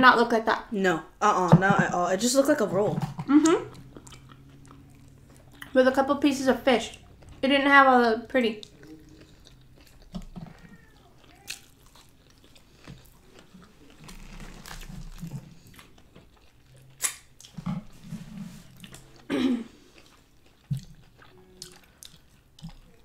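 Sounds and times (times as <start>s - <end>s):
wet chewing mouth noises: 3.0s - 5.8s, 8.4s - 18.0s, 18.6s - 23.0s.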